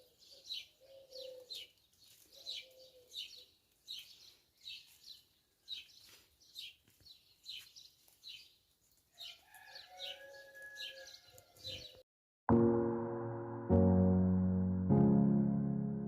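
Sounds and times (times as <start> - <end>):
bird chirping high falling note: 12.5 - 16.0
piano music: 12.5 - 16.0.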